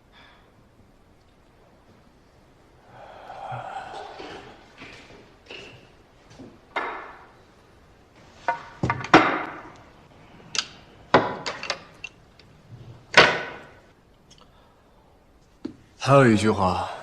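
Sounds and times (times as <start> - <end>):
snooker balls clacking: 3.9 - 7.4, 8.3 - 9.9, 10.6 - 12.2, 12.8 - 13.9.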